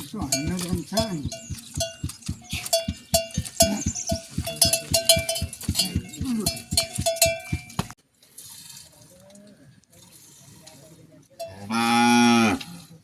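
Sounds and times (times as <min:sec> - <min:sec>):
livestock bells clanking: 0:00.0 - 0:07.9.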